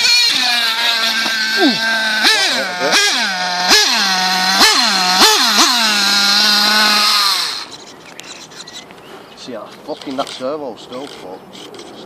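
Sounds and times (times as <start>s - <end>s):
small nitro engine revving: 0.0s - 8.6s.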